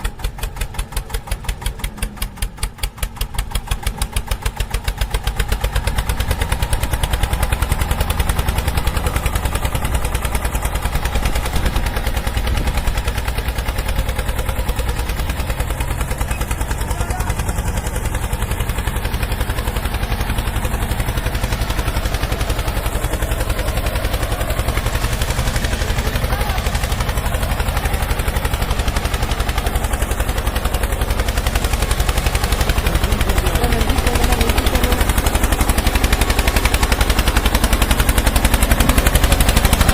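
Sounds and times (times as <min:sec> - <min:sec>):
tractor engine running hard: 0:00.0 - 0:39.9.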